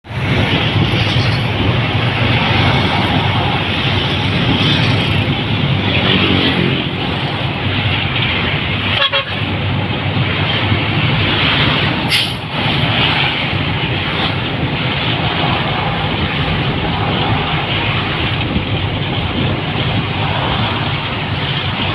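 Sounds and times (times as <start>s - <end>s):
road and wind noise: 0.0s - 21.9s
low rumble: 0.1s - 21.9s
car horn toot: 8.9s - 9.5s.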